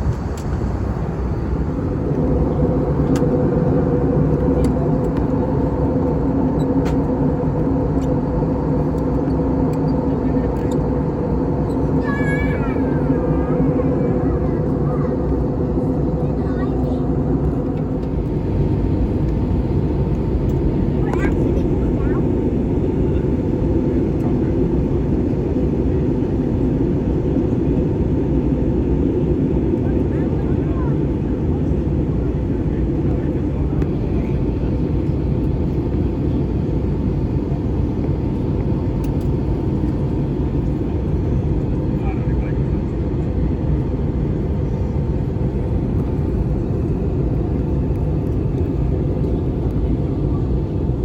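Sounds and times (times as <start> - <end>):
jet airliner cabin engine rumble: 0.0 - 51.0.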